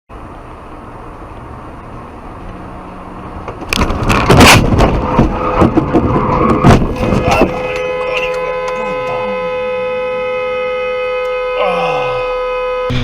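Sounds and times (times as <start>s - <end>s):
car engine and road rumble: 0.1s - 13.0s
car collision crunching impacts: 3.4s - 8.7s.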